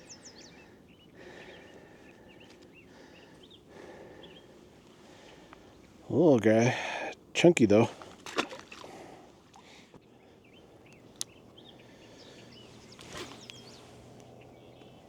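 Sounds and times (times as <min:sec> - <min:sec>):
bird chirps: 0:00.0 - 0:04.5, 0:10.4 - 0:15.0
handling rustle: 0:12.6 - 0:14.4.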